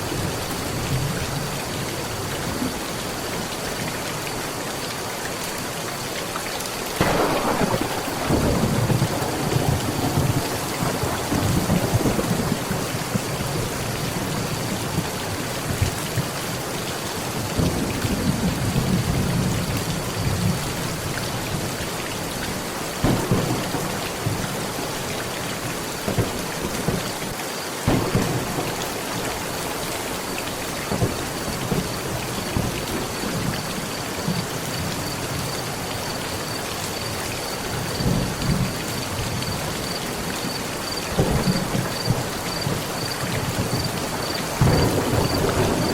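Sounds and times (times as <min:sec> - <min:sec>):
heavy rain on a metal roof: 0:00.0 - 0:45.9
sharp thunder cracks: 0:07.0 - 0:13.4, 0:23.0 - 0:27.2, 0:27.9 - 0:32.8, 0:40.9 - 0:45.9
thunder rumbling: 0:07.0 - 0:15.8, 0:23.0 - 0:27.3, 0:27.9 - 0:34.5, 0:37.8 - 0:45.9.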